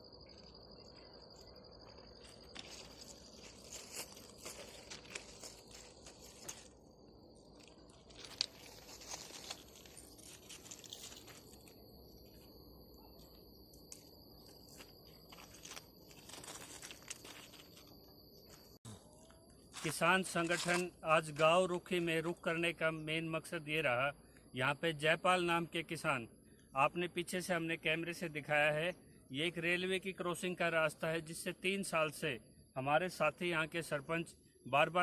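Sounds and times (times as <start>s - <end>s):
crickets chirring: 0.0s - 35.0s
soft crunching and rustling clicks: 1.8s - 6.8s, 7.4s - 12.5s, 13.2s - 21.5s.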